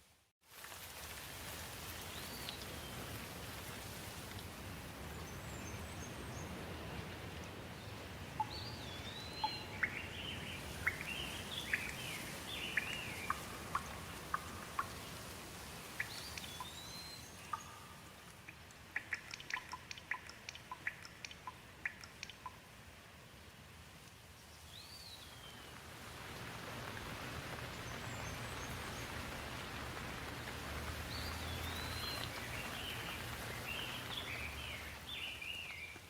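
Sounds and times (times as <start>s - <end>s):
rain hiss: 0.0s - 36.0s
water dripping: 0.5s - 5.2s, 8.2s - 22.8s, 24.0s - 36.0s.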